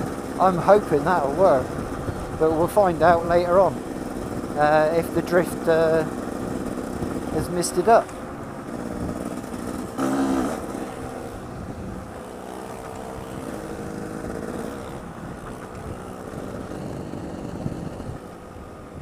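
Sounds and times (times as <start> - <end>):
motorcycle engine running: 0.0 - 19.0
wind noise on microphone: 1.6 - 3.6, 11.4 - 12.2, 13.2 - 19.0.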